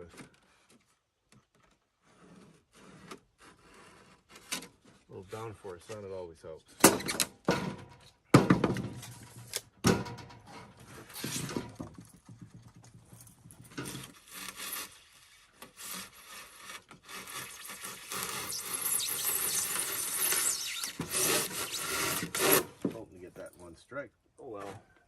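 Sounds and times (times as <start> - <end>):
blade scraping foam board: 2.0 - 5.5, 10.8 - 11.8, 13.8 - 23.0.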